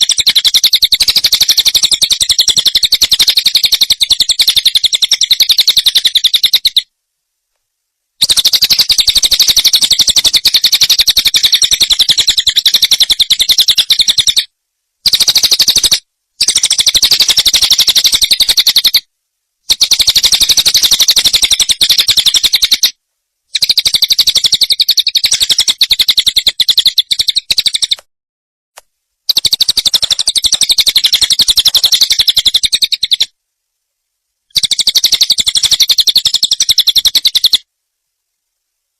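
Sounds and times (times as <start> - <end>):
songbird trilling twitter: 0.0 - 6.9, 8.2 - 14.5, 23.5 - 28.0, 29.3 - 33.3, 34.5 - 37.6.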